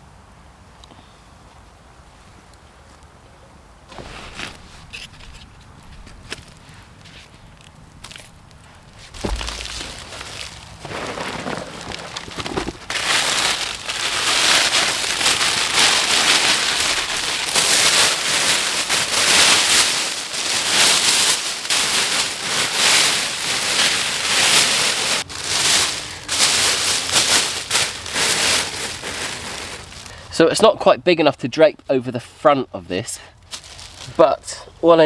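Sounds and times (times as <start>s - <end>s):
foil blanket crinkling: 3.9s - 30.2s, 33.4s - 34.4s.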